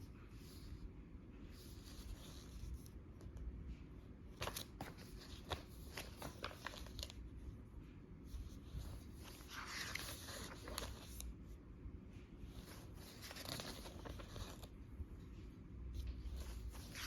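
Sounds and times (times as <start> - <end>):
paper pages rustling: 1.6 - 3.0, 4.2 - 7.4, 8.3 - 11.4, 12.1 - 14.9, 15.9 - 17.0.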